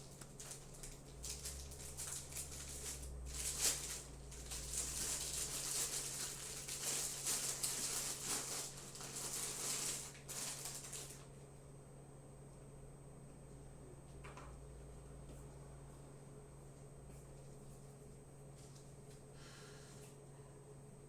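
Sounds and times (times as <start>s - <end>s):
chip bag crinkling: 0.0s - 11.4s.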